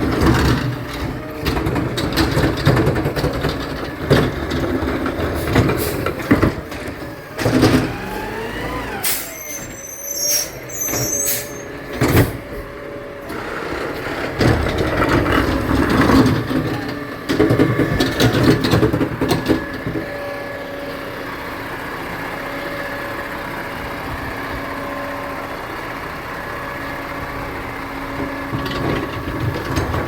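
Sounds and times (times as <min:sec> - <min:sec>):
garbage truck running: 0:00.0 - 0:30.0
high thin squeal: 0:09.0 - 0:11.8.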